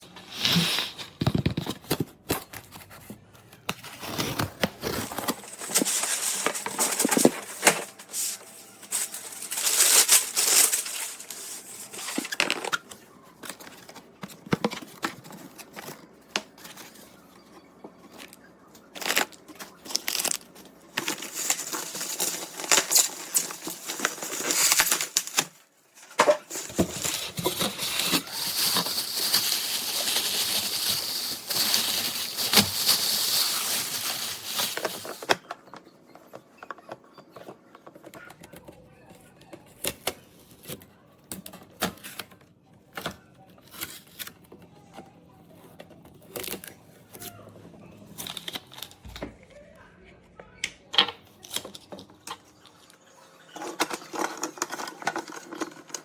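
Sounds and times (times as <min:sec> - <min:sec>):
packaging tearing and crinkling: 0:03.8 - 0:14.0, 0:18.2 - 0:35.4, 0:48.1 - 0:49.0, 0:53.6 - 0:56.0.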